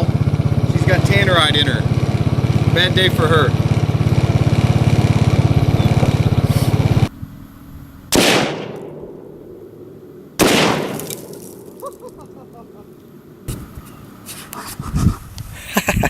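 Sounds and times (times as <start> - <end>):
engine running with fast pulse: 0.0 - 14.3
loud explosive bangs with echo: 8.1 - 11.8.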